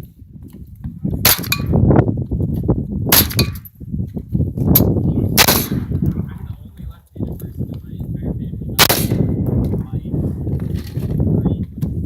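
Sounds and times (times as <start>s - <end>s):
rifle shots: 1.2s - 1.7s, 5.4s - 6.0s, 8.8s - 9.4s.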